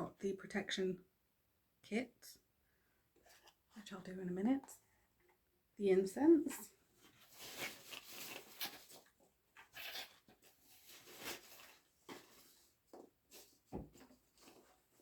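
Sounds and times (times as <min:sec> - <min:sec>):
packaging rustling and crinkling: 0:07.0 - 0:15.0.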